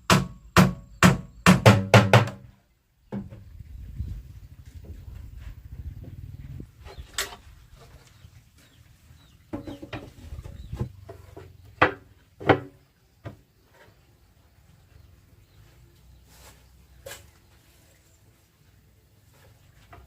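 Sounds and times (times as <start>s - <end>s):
sharp knocks: 0.0s - 2.4s
chickens clucking: 5.9s - 11.8s.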